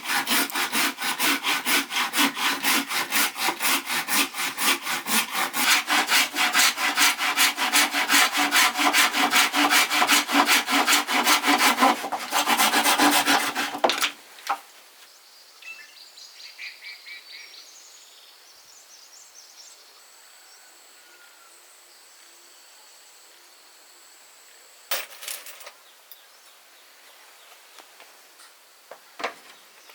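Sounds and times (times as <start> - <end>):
hand saw cutting wood: 0.0 - 14.6
faint birds: 14.9 - 24.9, 25.7 - 29.9
insects: 15.0 - 24.9, 25.7 - 29.9.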